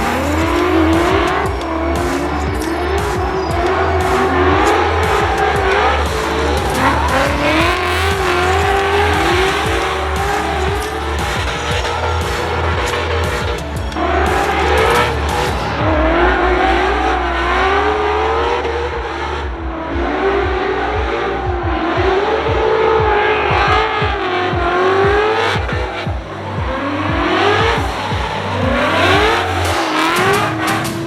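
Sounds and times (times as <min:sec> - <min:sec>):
car engine revving: 0:00.0 - 0:31.0
tires squealing: 0:00.0 - 0:31.0.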